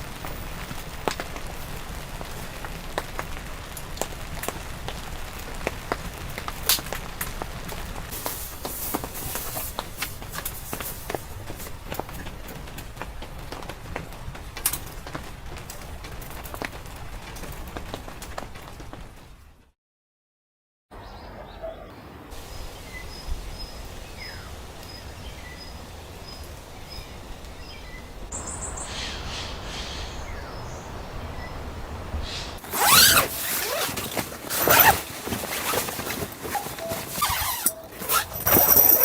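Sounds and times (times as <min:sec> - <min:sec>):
gear scraping and rustling: 0:32.6 - 0:39.0.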